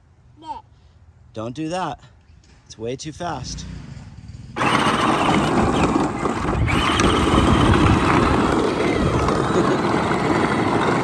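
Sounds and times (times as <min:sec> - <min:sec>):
tyres rumbling over ground: 0:03.2 - 0:11.0
electric motor and gear whine: 0:04.6 - 0:11.0.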